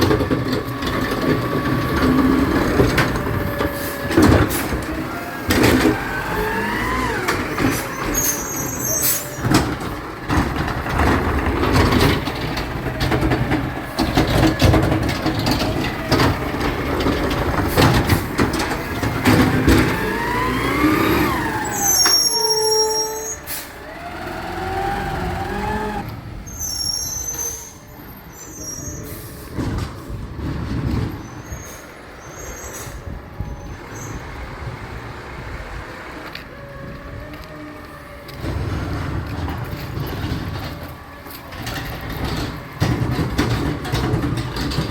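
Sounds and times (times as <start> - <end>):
metal clanks and knocks: 0.0 - 21.0, 38.3 - 44.9
garbage truck engine and hydraulics: 0.0 - 44.9.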